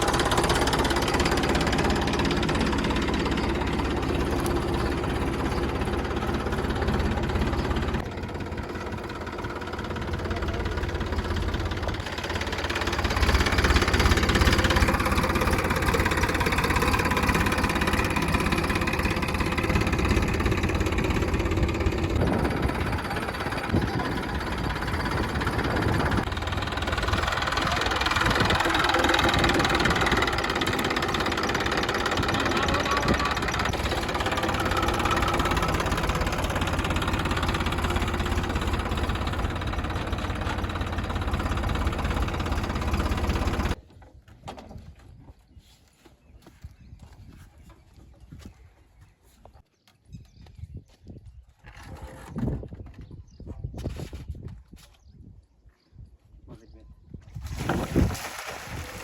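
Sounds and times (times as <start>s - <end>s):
mini tractor engine running: 0.0s - 43.8s.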